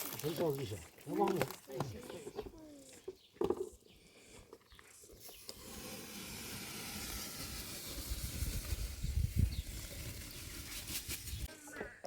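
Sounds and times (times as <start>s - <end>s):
food cooking hiss: 5.2s - 11.5s.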